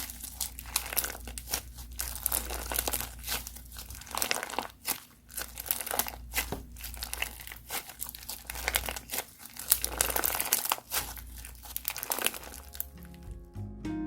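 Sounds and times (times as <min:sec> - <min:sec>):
crunchy slime crackling: 0:00.0 - 0:13.3
plucked-string tune: 0:12.9 - 0:14.0.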